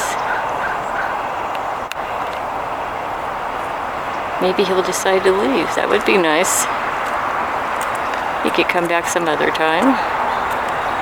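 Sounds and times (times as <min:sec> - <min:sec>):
distant road traffic hiss: 0:00.0 - 0:11.0.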